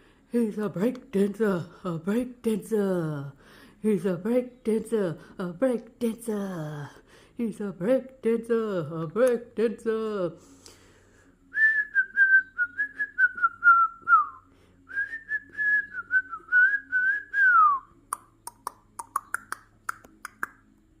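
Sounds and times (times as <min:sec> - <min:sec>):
parrot clicks and chirps: 0:18.1 - 0:20.7.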